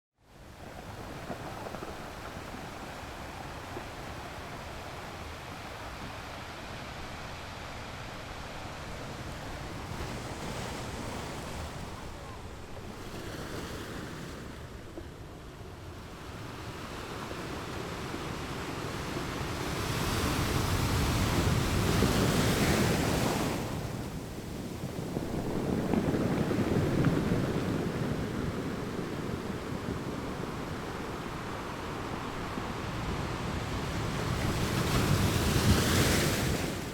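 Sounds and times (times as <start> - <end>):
wind on microphone: 16.0 - 36.9
sea waves breaking on rocks: 18.9 - 36.9.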